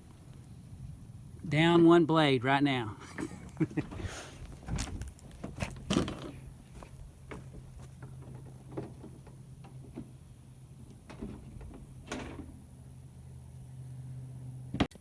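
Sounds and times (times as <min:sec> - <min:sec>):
light knocks and clunks: 0:03.1 - 0:10.2, 0:10.8 - 0:12.6.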